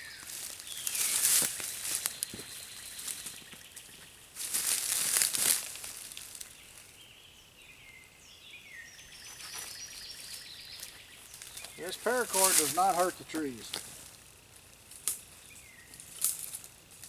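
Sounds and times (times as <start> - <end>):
loud rustling and crinkling: 0.1 - 3.6, 4.4 - 6.9, 11.3 - 14.2.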